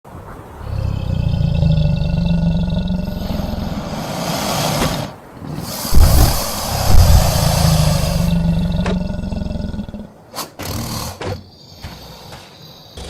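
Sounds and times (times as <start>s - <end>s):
low rumbling growl: 0.4s - 10.2s
breathy hiss: 0.5s - 13.0s
loud low thud: 5.9s - 9.3s.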